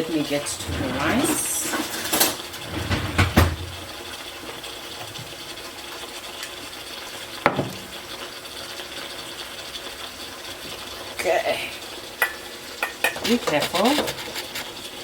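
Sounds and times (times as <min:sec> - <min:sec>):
utensils clinking against a pot: 0:00.2 - 0:02.6, 0:12.2 - 0:15.0.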